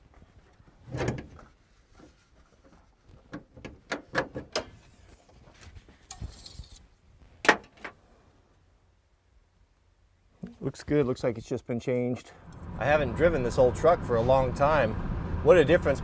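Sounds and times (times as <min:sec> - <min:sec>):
brief rustle: 0:04.7 - 0:06.9.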